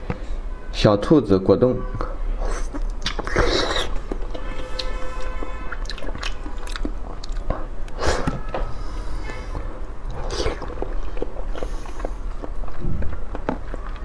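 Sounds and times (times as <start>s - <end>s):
person chewing jelly: 2.4s - 14.0s
wet bite into jelly: 2.5s - 4.0s, 10.1s - 12.5s
wet mouth clicks: 2.5s - 4.1s, 5.7s - 8.0s.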